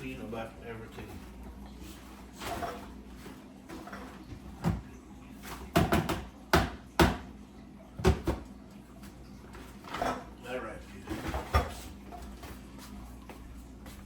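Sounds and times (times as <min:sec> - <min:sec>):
kitchen knocks and bangs: 0:05.5 - 0:07.3, 0:08.0 - 0:08.5.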